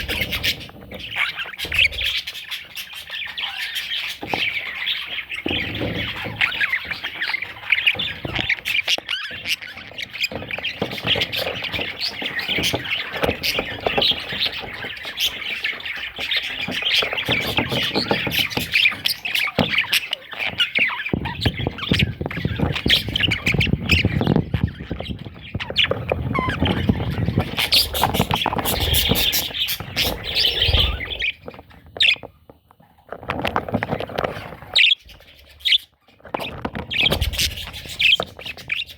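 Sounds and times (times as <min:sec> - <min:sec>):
budgerigar chattering: 0:27.4 - 0:31.4.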